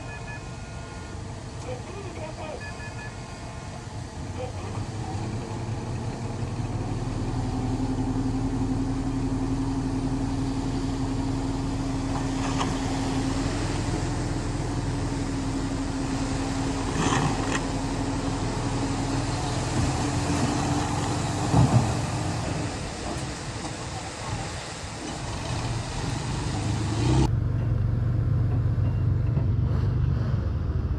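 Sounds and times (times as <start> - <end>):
heavy machinery diesel engine: 0.0 - 30.9.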